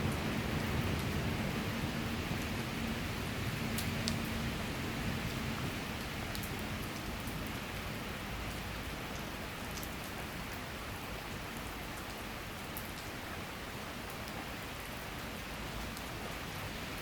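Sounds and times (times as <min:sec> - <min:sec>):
raindrops ticking: 0:03.6 - 0:04.5, 0:05.2 - 0:10.6, 0:11.4 - 0:13.2, 0:14.0 - 0:16.4.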